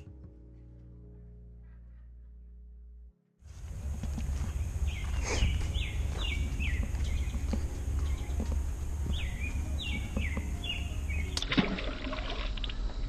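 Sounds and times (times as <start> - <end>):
steady low rumble: 3.5 - 11.5
songbird singing falling notes: 4.2 - 11.7.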